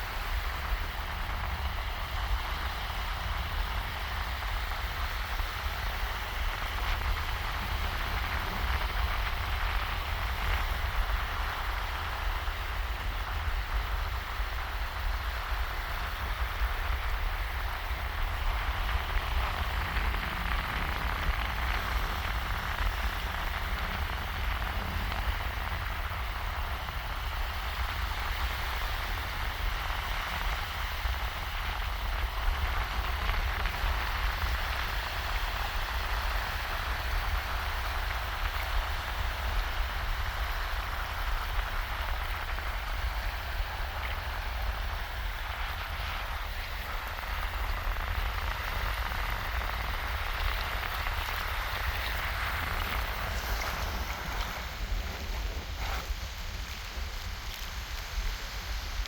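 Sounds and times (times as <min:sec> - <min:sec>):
waves washing on a beach: 0:00.0 - 0:59.0
wind rumble on microphone: 0:00.0 - 0:59.0.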